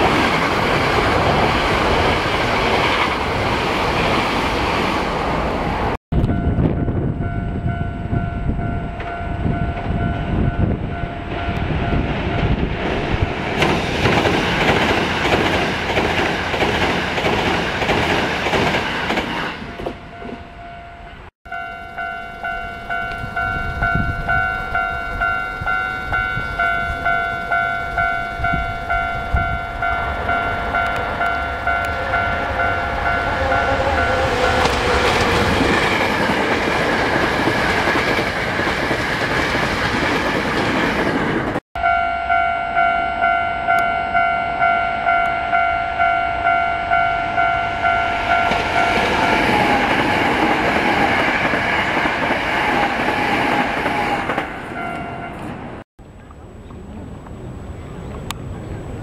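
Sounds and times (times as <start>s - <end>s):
train wheels clickety-clack on rails: 0.0s - 5.0s, 9.0s - 20.4s, 30.6s - 41.6s, 48.2s - 55.8s
pulsing ringing tone: 20.0s - 34.7s, 41.8s - 50.0s.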